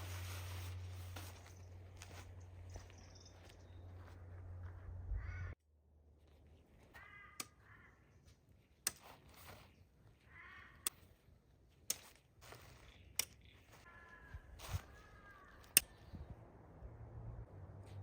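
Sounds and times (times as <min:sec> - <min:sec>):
faint bird calls: 0:02.7 - 0:05.6, 0:06.8 - 0:08.4, 0:09.7 - 0:11.2, 0:12.5 - 0:16.3
sharp clicks: 0:15.6 - 0:16.0.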